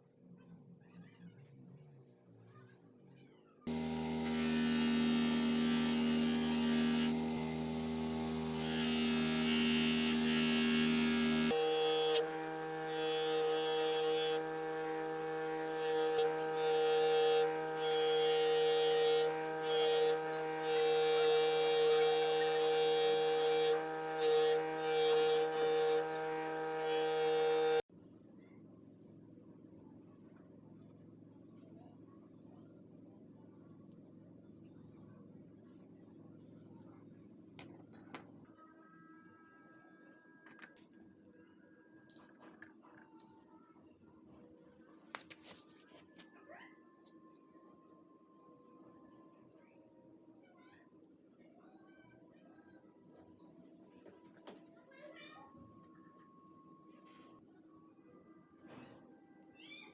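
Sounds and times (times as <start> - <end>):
small electric power tool motor: 3.7 - 27.9.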